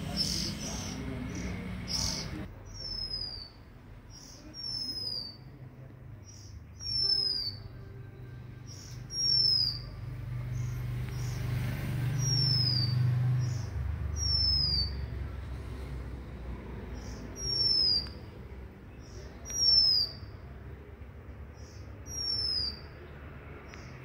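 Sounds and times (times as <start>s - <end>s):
songbird whistling call: 0.0s - 5.5s, 6.3s - 7.8s, 8.6s - 9.9s, 12.1s - 15.1s, 17.0s - 18.3s, 19.0s - 20.3s, 21.6s - 23.0s.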